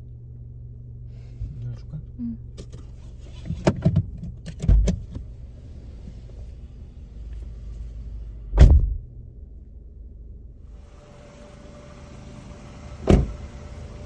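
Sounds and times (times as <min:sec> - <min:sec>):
low steady rumble: 0:00.0 - 0:14.0
car door shutting: 0:02.6 - 0:05.3, 0:08.5 - 0:09.0, 0:11.8 - 0:14.0.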